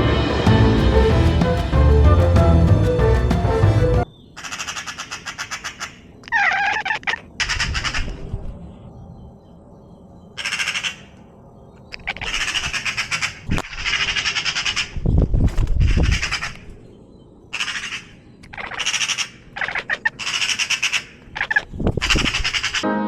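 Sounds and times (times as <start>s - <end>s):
animal rattling calls: 4.4s - 8.2s, 10.4s - 11.1s, 11.9s - 16.7s, 17.5s - 22.8s.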